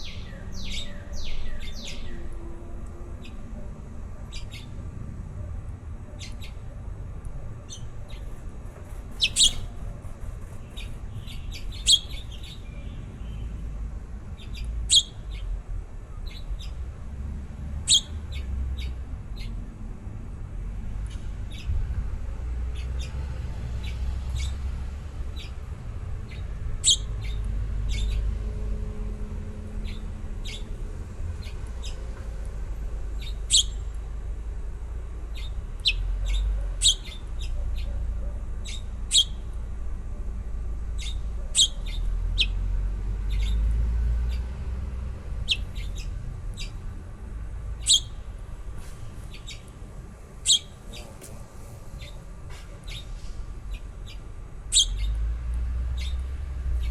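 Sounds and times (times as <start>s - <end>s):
baby birds chirping: 7.8s - 13.4s, 14.4s - 15.3s, 17.9s - 18.5s, 26.8s - 27.1s, 33.2s - 33.8s, 35.4s - 37.6s, 38.6s - 39.5s, 41.0s - 42.6s, 45.4s - 46.8s, 47.8s - 48.2s, 50.4s - 51.3s, 53.7s - 55.2s.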